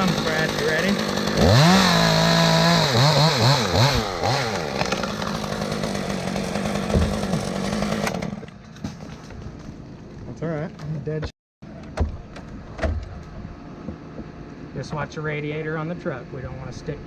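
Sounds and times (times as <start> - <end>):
chainsaw revving and cutting: 0.0 - 8.6.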